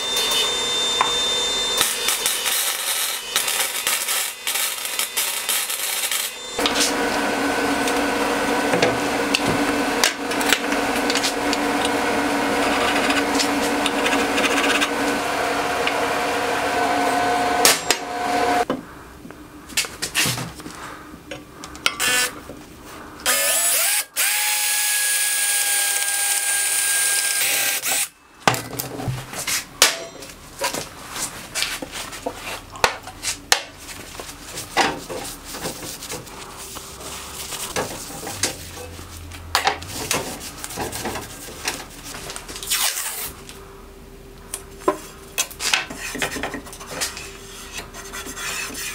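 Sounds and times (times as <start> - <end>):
electric power tool motor running: 0.0 - 18.6, 23.3 - 28.1.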